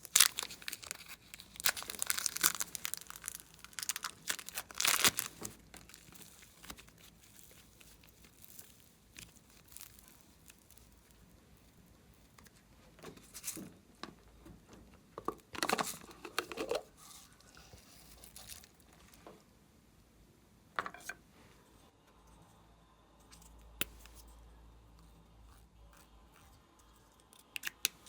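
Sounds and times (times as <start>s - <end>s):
slime crackling and squelching: 0.0s - 11.2s.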